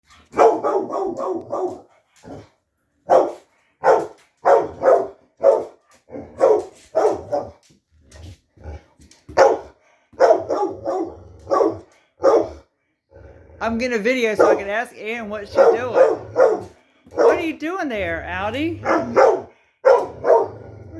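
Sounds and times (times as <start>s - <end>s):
dog barking: 0.2s - 2.4s, 3.1s - 7.6s, 9.3s - 12.6s, 14.4s - 14.8s, 15.4s - 17.5s, 18.8s - 20.6s.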